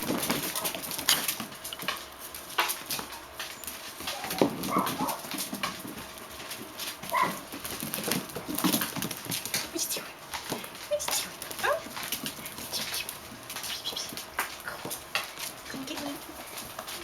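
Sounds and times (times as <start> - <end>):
puppies scuffling: 0.0 - 17.0
puppy yips: 7.1 - 7.4.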